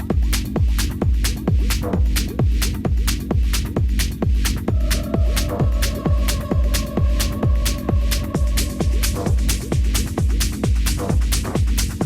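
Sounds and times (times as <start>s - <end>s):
hi-hats ticking: 0.0s - 12.0s
techno music: 0.0s - 12.0s.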